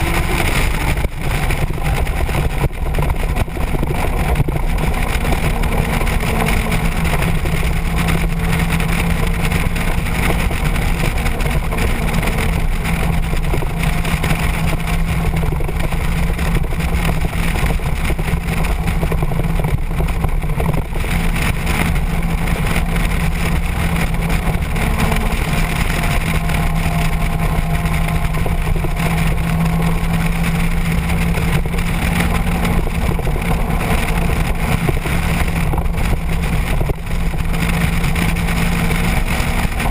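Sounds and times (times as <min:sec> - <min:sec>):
motorcycle engine droning: 0:00.0 - 0:39.9
wind noise on microphone: 0:00.0 - 0:39.9.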